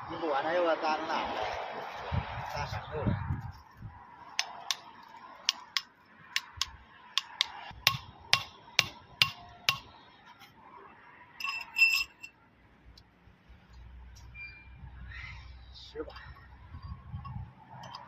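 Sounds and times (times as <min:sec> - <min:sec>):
hammer tapping metal: 0:04.4 - 0:04.8, 0:05.4 - 0:09.9
metal parts clinking: 0:11.4 - 0:12.3.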